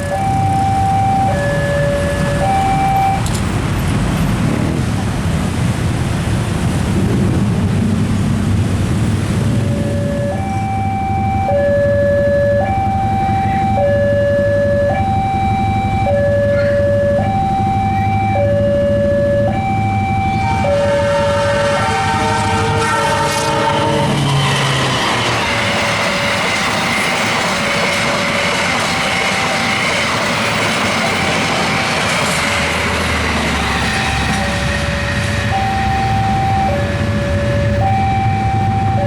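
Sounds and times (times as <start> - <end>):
level crossing two-tone alarm: 0.0 - 3.2, 9.5 - 22.2, 23.6 - 39.0
loud rushing noise: 3.1 - 10.8, 19.7 - 38.5
train horn: 20.2 - 25.8.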